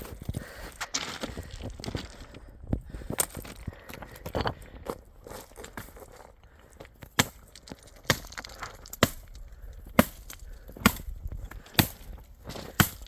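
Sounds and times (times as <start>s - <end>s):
axe chopping firewood: 7.0s - 7.4s, 8.0s - 13.0s.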